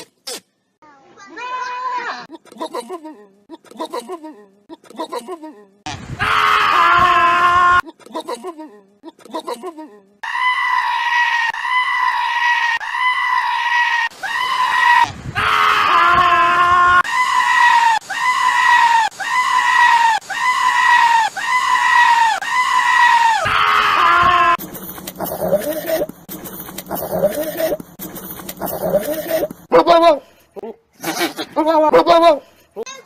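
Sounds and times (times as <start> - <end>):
goat screaming: 10.2 - 24.6.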